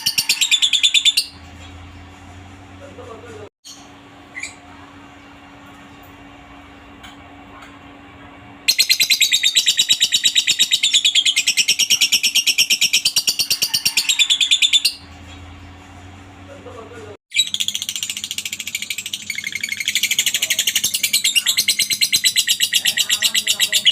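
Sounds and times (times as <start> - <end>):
lovebird chattering trill: 17.3 - 23.9.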